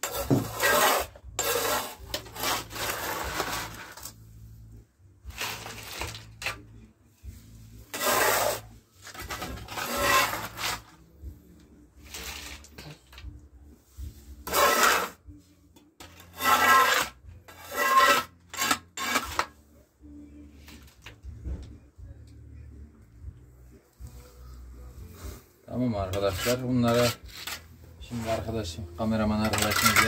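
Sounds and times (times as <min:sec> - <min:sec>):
rough rasping scrapes: 0:00.0 - 0:04.2, 0:07.4 - 0:11.0, 0:14.0 - 0:15.2, 0:16.0 - 0:19.6, 0:24.0 - 0:30.0.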